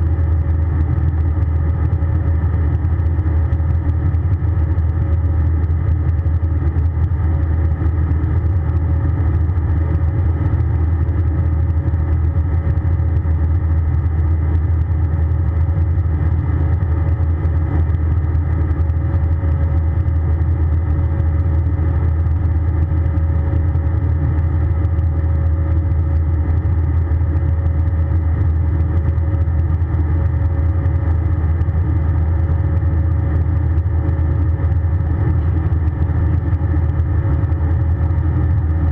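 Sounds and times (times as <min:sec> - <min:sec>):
aircraft cabin engine rumble: 0:00.0 - 0:38.9.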